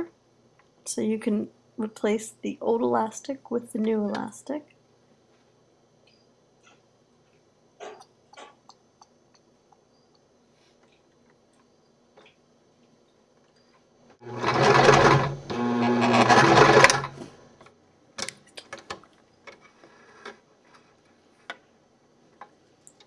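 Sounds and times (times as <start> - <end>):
faint clicks and taps: 6.0 - 13.9
sewing machine stitching: 14.2 - 17.3.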